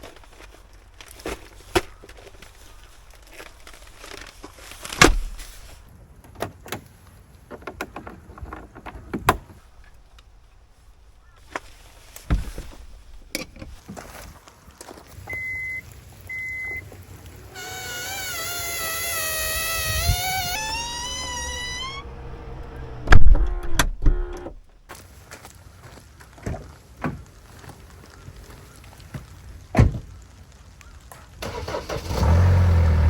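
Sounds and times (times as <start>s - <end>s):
power door motor whine: 17.6s - 24.6s.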